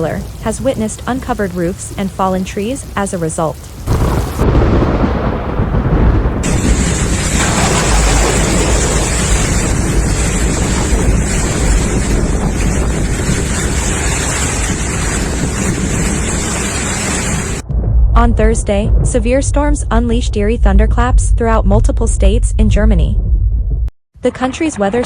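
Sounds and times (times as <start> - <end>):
strong storm wind buffeting: 0.0 - 23.9
bright rushing hiss: 6.4 - 17.6.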